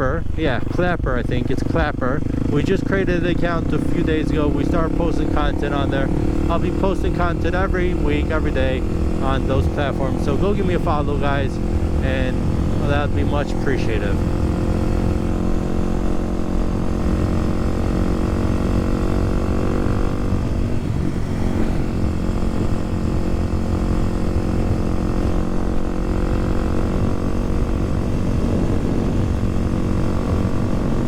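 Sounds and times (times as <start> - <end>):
motorcycle engine running: 0.0 - 31.0
wind noise: 18.4 - 31.0.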